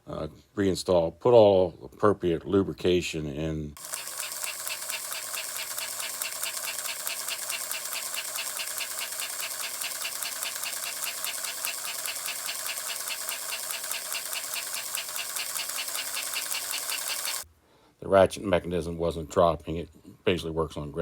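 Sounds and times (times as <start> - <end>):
rapid mechanical ticking: 3.8 - 17.4
toy train motor running: 3.8 - 17.4.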